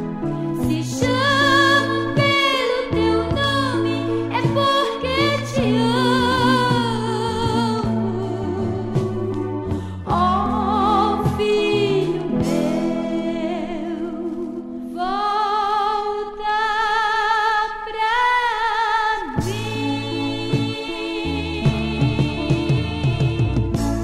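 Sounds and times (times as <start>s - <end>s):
woman singing with vibrato: 0.6s - 23.8s
band accompaniment: 20.4s - 24.0s.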